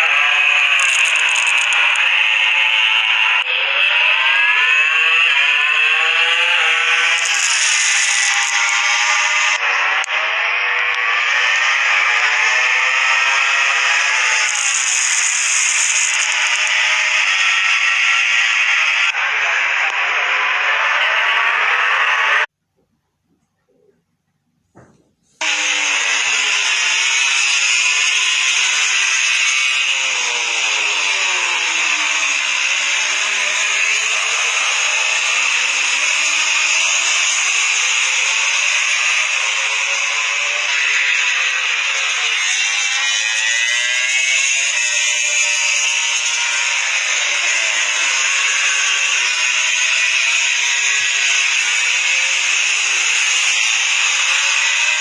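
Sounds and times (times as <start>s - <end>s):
race motorcycle engines howling: 0.0s - 22.5s.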